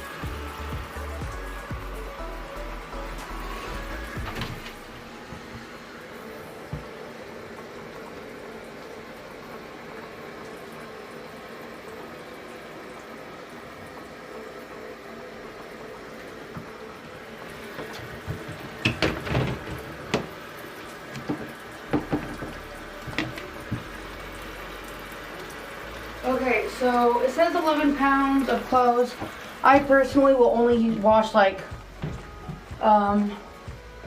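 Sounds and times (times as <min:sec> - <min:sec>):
water running into plastic tub: 0:00.0 - 0:34.0
sharp knocks and clatters: 0:17.8 - 0:20.4, 0:21.1 - 0:23.9.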